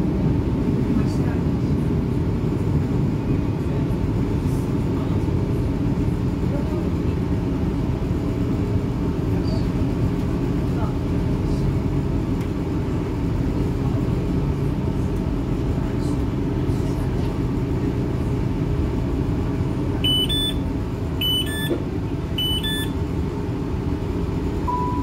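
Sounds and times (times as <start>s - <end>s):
diesel engine idling hum: 0.0s - 25.0s
two-note door warning beeps: 20.0s - 20.6s, 21.2s - 21.8s, 22.4s - 23.0s, 24.6s - 25.0s.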